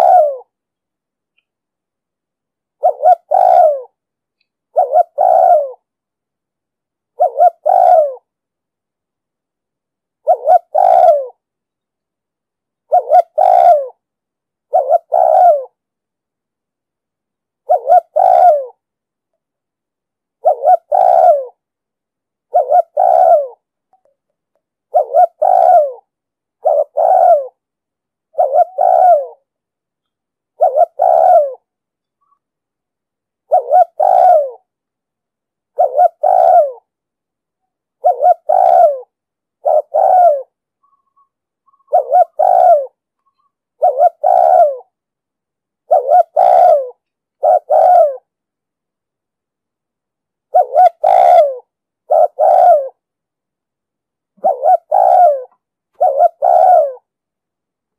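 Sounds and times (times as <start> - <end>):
dove cooing: 0.0 - 0.6, 2.8 - 4.0, 4.7 - 5.9, 7.1 - 8.3, 10.2 - 11.4, 12.9 - 14.0, 14.7 - 15.8, 17.6 - 18.8, 20.4 - 21.6, 22.5 - 23.7, 24.9 - 27.6, 28.3 - 29.5, 30.6 - 32.4, 33.4 - 34.7, 35.7 - 36.9, 38.0 - 45.0, 45.8 - 48.3, 50.5 - 53.0, 54.4 - 57.1.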